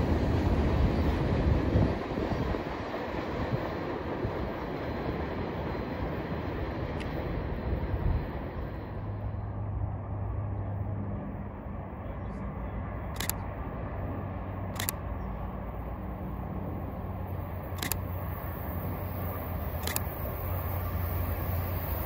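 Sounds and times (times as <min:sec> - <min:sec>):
diesel locomotive hum: 0:00.0 - 0:22.0
wind: 0:00.0 - 0:22.0
camera shutter clicks: 0:13.2 - 0:13.4, 0:14.8 - 0:15.0, 0:17.8 - 0:18.0, 0:19.8 - 0:20.1.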